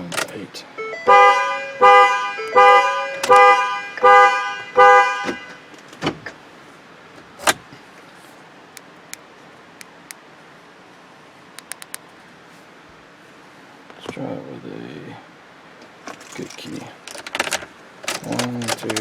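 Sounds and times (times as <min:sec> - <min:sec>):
car horn honking: 0:00.8 - 0:05.7.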